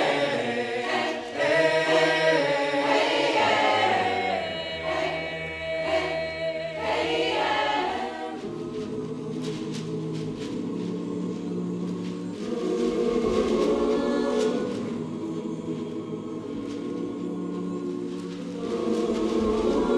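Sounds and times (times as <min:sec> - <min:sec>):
choir singing held chords: 0:00.0 - 0:19.9.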